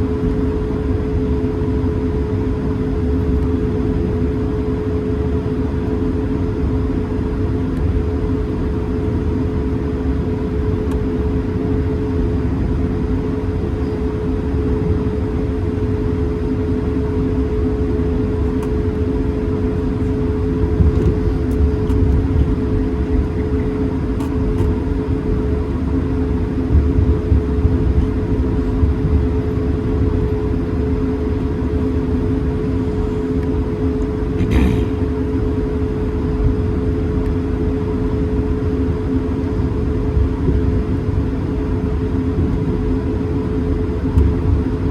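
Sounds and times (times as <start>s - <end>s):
aircraft cabin rumble and hum: 0.0s - 44.9s.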